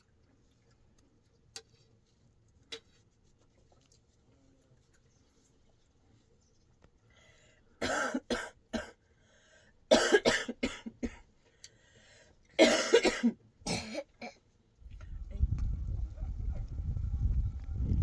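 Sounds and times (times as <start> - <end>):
woman coughing: 7.8 - 9.0, 9.9 - 11.2, 12.6 - 14.4.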